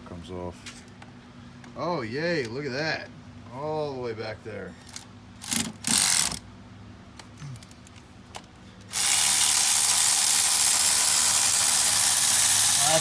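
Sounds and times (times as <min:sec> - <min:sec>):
ratchet rattling: 0:04.9 - 0:06.4, 0:08.9 - 0:13.0.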